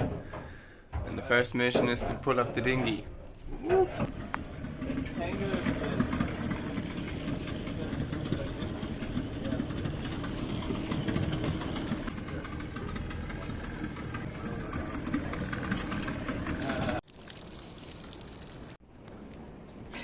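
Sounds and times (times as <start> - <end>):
engine idling: 4.1 - 17.0.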